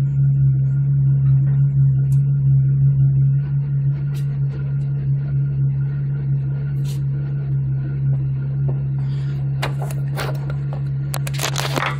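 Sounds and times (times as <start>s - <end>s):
car engine idling: 0.0s - 11.9s
sharp clicks and crackles: 9.6s - 11.9s.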